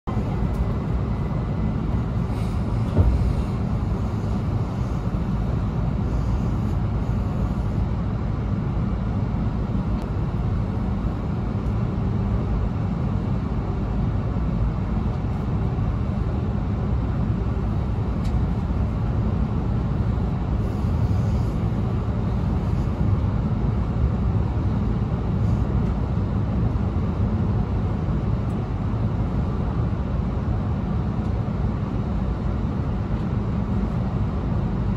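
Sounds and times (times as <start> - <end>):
train cabin rumble: 0.1 - 7.8
short knock: 2.9 - 3.2.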